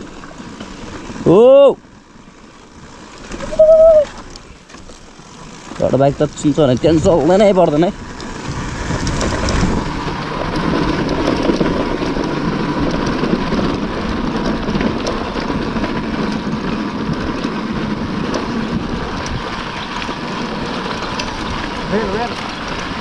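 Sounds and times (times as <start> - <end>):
dirt bike engine running: 0.0 - 23.0
wind noise on microphone: 3.4 - 4.2, 6.2 - 23.0.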